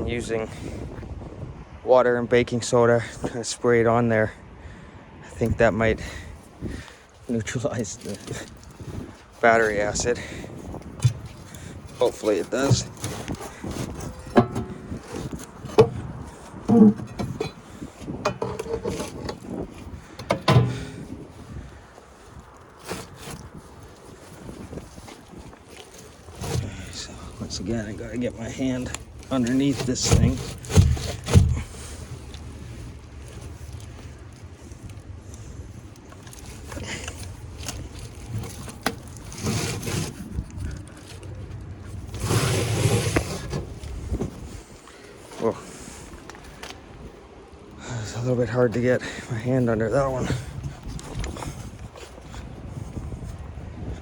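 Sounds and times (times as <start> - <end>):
battery scraping in its case: 5.9 - 46.9.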